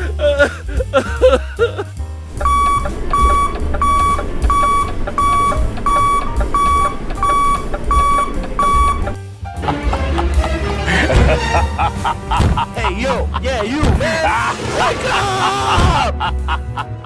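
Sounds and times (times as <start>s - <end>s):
alarm clock beeping: 2.4s - 9.2s.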